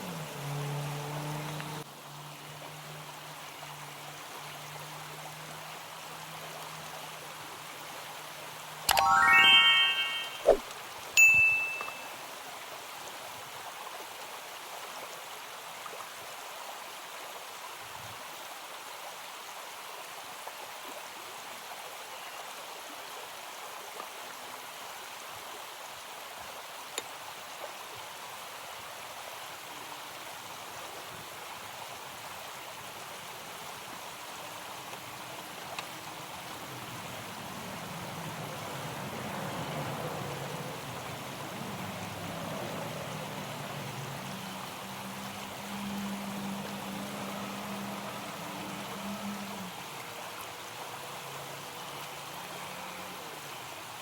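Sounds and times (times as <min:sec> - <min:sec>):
stream water rushing: 0:00.0 - 0:10.6, 0:22.7 - 0:54.0.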